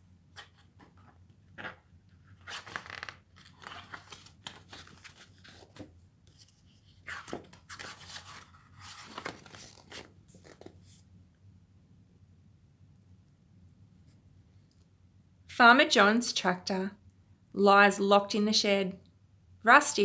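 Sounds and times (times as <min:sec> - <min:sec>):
book pages rustling: 0:00.3 - 0:11.1.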